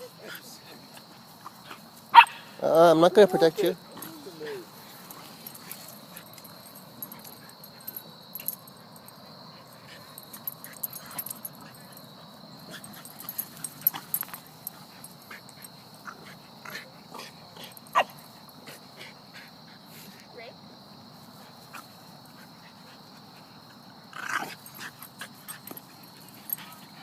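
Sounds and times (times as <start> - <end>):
dogs yipping and barking: 1.4 - 18.4
dog yelping: 2.1 - 2.5.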